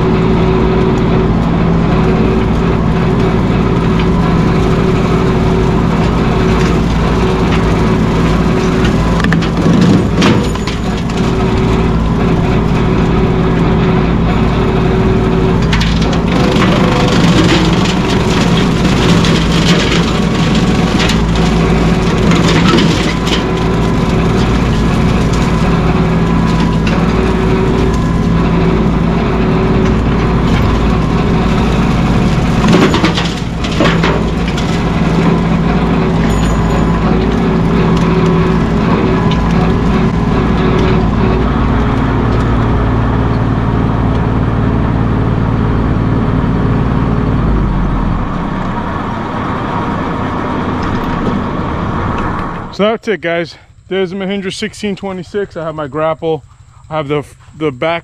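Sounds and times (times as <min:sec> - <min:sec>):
tractor diesel engine running: 0:00.0 - 0:58.0
brush and wood breaking: 0:03.1 - 0:12.9, 0:15.5 - 0:42.7.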